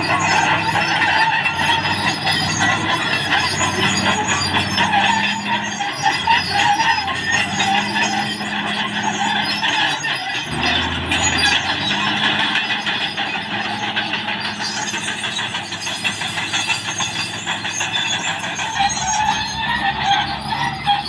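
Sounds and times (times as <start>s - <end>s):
bulldozer clatter: 0.0s - 21.0s
bulldozer diesel engine running: 0.0s - 21.0s.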